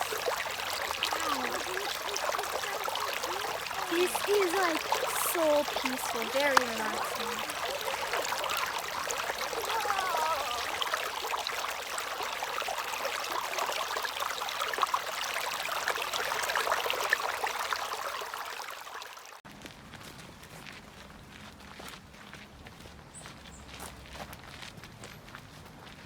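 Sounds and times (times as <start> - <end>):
creek water over rocks: 0.0 - 19.4.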